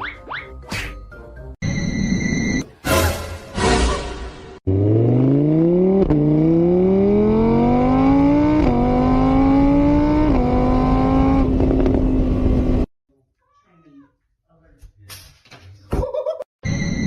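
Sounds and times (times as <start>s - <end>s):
car engine accelerating through gears: 4.7s - 12.9s.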